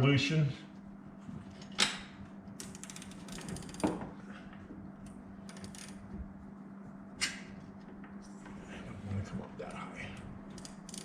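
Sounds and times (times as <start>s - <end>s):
steady low hum: 0.0s - 11.0s
spring winder gear clicking: 10.6s - 11.0s.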